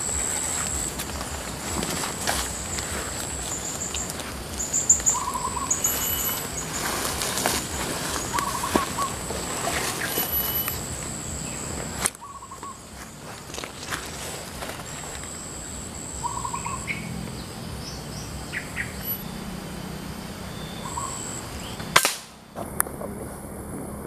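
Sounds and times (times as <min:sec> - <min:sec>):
bird chirps and trills: 0:00.0 - 0:22.6
faint high steady buzz: 0:00.0 - 0:24.0
sharp loud click: 0:21.8 - 0:22.9.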